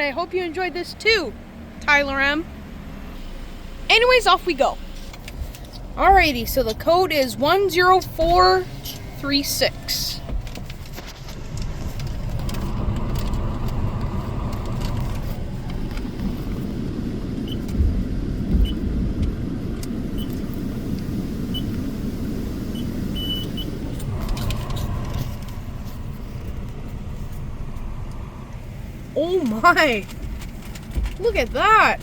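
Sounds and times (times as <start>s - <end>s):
car engine idling: 0.0s - 32.0s
faint high beeps: 22.7s - 23.8s.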